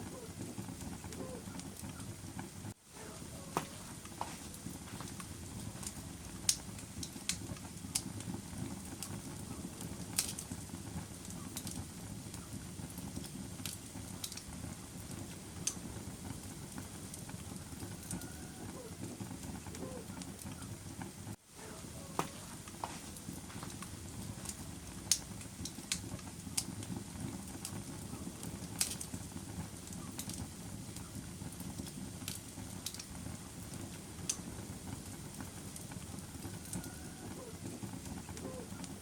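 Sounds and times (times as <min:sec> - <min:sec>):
fire rushing: 0:00.0 - 0:39.0
wood crackling and popping: 0:00.0 - 0:39.0.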